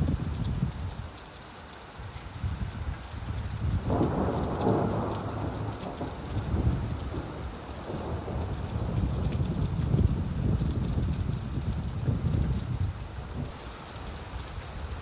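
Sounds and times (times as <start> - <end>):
steady rain: 0.0 - 15.0
low rumble of thunder: 2.5 - 13.5.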